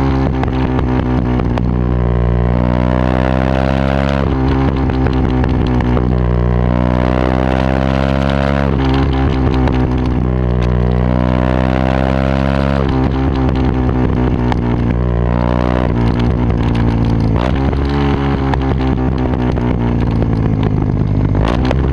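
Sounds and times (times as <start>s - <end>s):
motorcycle engine running loud: 0.0s - 21.9s.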